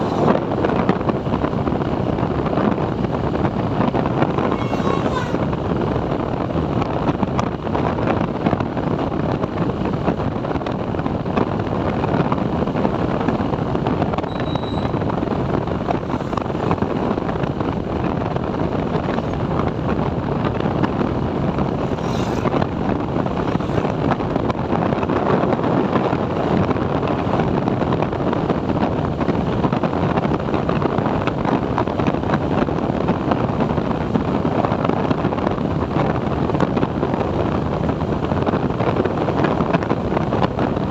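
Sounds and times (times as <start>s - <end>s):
wind rushing over microphone: 0.0s - 40.9s
motorcycle engine running: 10.6s - 25.7s.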